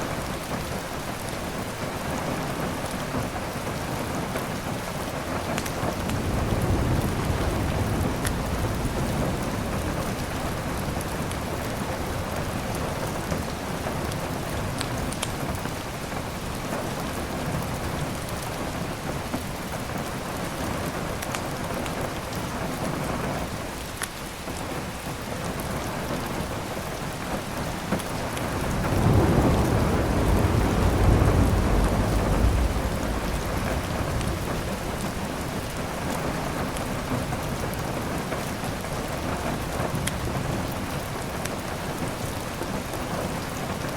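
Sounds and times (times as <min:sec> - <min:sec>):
heavy rain: 0:00.0 - 0:43.9
low roll of thunder: 0:05.8 - 0:13.4, 0:28.0 - 0:37.7
wood fire crackling: 0:28.0 - 0:37.0.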